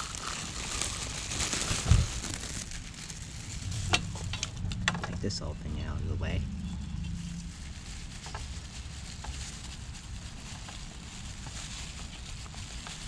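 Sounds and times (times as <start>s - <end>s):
low rumble: 0.0s - 10.4s.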